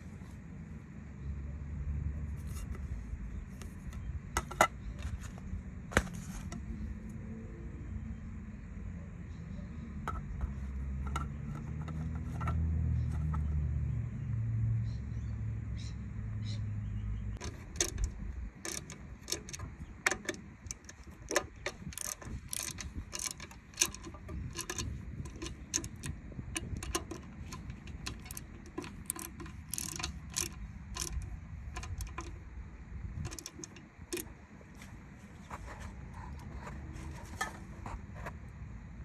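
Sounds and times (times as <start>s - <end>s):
clicks and taps of hard parts: 4.4s - 5.3s, 10.1s - 13.5s, 17.4s - 32.4s, 33.2s - 34.9s.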